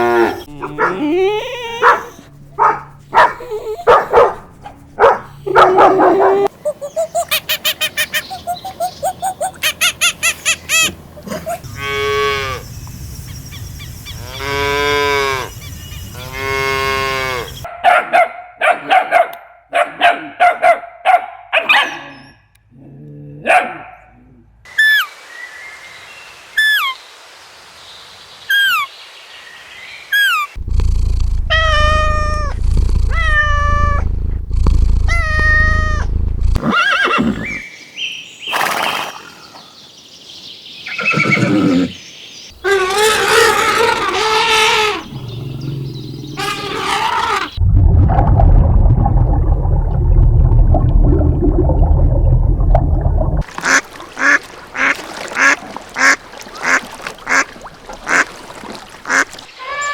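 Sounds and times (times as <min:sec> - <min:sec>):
pitched animal calls: 0:00.0 - 0:04.1, 0:30.2 - 0:37.6, 0:42.6 - 0:47.6
long drawn-out animal calls: 0:30.2 - 0:34.0, 0:42.6 - 0:45.2.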